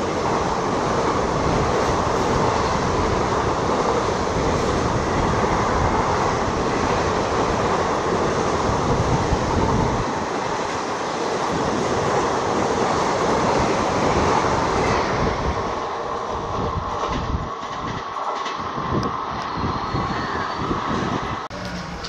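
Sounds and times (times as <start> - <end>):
rattling train coaches: 0.0 - 22.0
train wheels on rails: 0.0 - 22.0.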